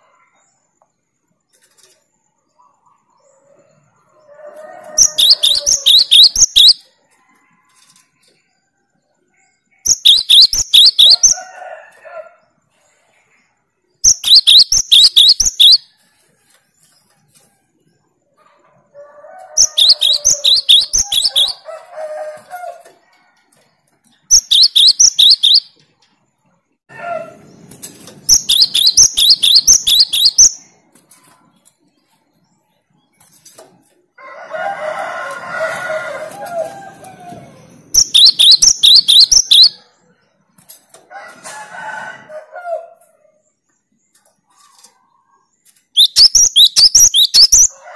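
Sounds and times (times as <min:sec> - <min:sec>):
bird song rapid high notes: 0:05.0 - 0:06.9, 0:09.9 - 0:11.4, 0:14.0 - 0:15.9, 0:19.6 - 0:21.6, 0:24.3 - 0:25.8, 0:28.3 - 0:30.8, 0:37.9 - 0:39.8, 0:45.9 - 0:47.7.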